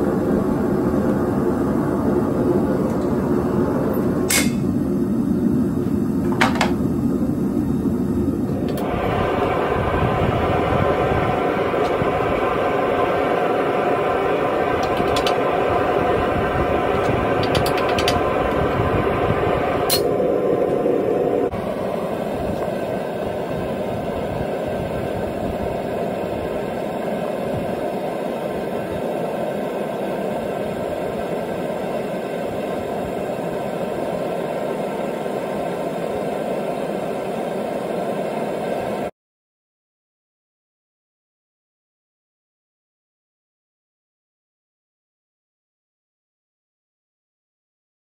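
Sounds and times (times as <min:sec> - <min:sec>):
furnace burner rushing: 0:00.0 - 0:39.1
sharp metal clink: 0:04.3 - 0:04.6.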